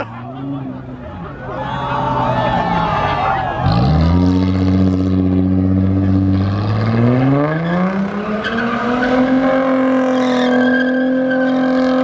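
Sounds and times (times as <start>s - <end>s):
engine revving: 3.6s - 12.0s.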